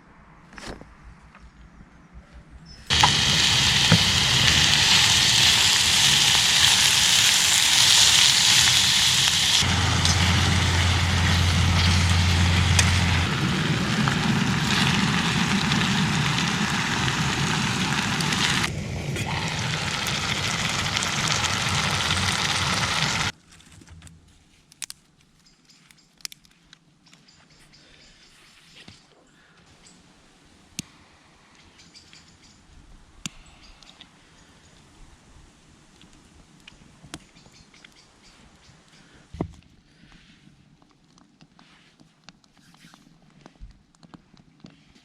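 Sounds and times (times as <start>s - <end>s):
fire hissing and crackling: 2.9s - 23.4s.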